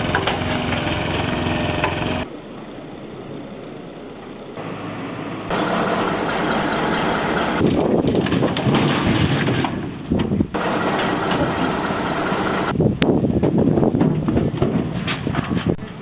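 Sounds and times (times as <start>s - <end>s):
boat engine running: 0.0s - 8.0s.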